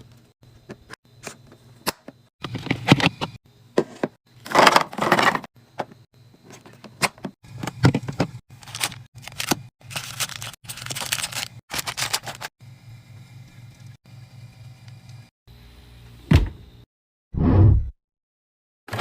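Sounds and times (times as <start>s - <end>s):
plastic packaging rustling: 8.5s - 12.5s.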